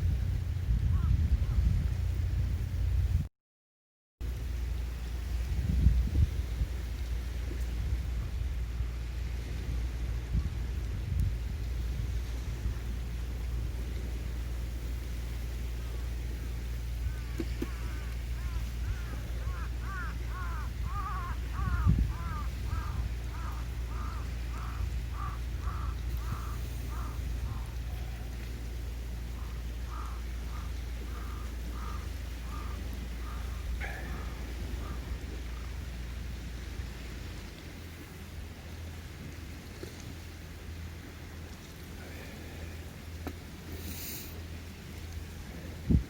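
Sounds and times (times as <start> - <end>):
steady low rumble: 0.0 - 3.3, 4.2 - 46.0
wind buffeting microphone: 0.0 - 3.3, 5.2 - 14.4, 16.9 - 28.3, 29.1 - 37.5, 45.5 - 46.0
bird calling in short arched calls: 17.1 - 27.8, 29.4 - 35.2.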